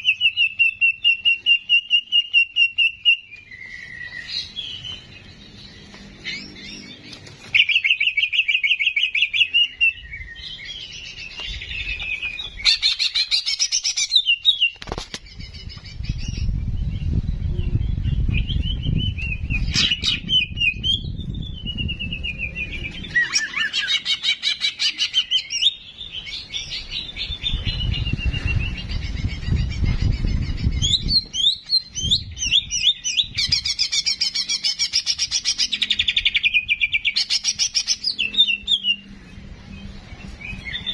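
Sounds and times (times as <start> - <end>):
low rumbling noise: 15.0 - 24.0, 25.8 - 40.9.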